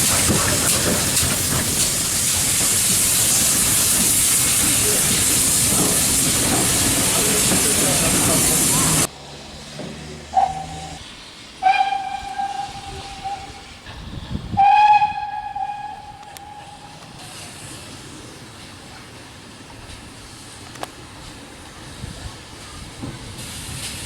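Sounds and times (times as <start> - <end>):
steam locomotive whistle: 10.3 - 11.0, 11.6 - 13.9, 14.5 - 17.4.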